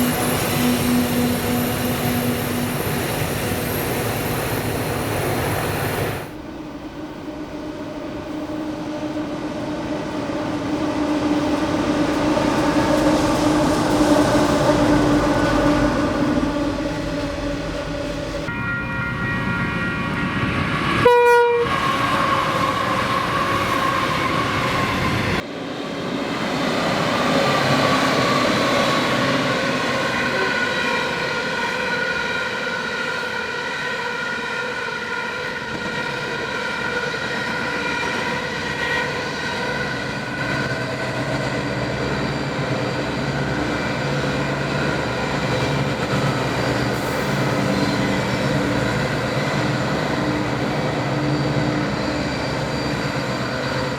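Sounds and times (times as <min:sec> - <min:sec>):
diesel locomotive engines droning: 0:00.0 - 0:53.9
train horn blast: 0:18.5 - 0:23.5.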